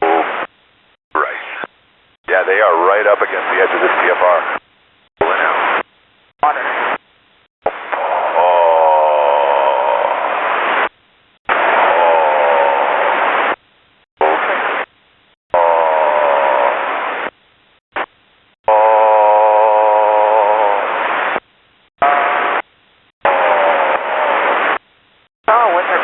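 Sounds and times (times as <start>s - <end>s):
radio static bursts: 0.0s - 0.5s, 1.2s - 4.6s, 5.2s - 7.0s, 7.6s - 8.5s, 9.5s - 13.6s, 14.2s - 14.9s, 15.5s - 17.4s, 18.0s - 18.2s, 20.5s - 21.4s, 22.0s - 24.8s
warbling radio tone: 5.2s - 5.8s, 22.0s - 22.6s.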